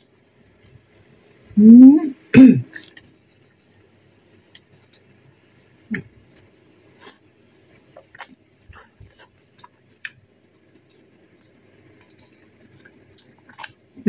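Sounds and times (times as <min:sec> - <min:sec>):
chewing with wet smacks: 0:08.0 - 0:13.9.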